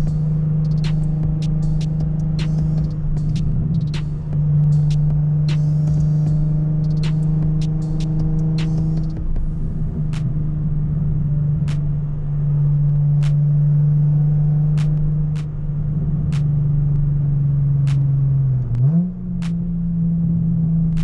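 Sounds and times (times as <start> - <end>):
sharp clicks: 0.0 - 9.5
car engine running: 0.0 - 21.0.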